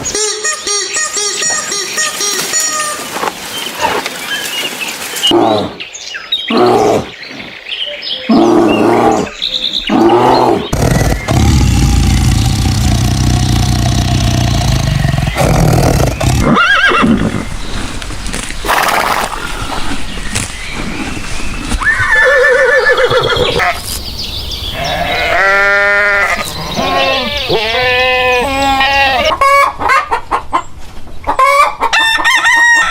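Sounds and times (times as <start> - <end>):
animals calling: 5.2 - 17.9, 18.6 - 30.2
steady rumbling: 10.7 - 16.5.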